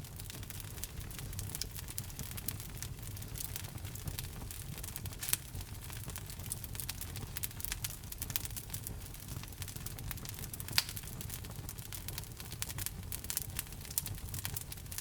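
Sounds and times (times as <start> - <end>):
fireplace fire crackling: 0.0 - 15.0
low fire rumble: 0.0 - 15.0
sharp fire pops: 0.2 - 11.4.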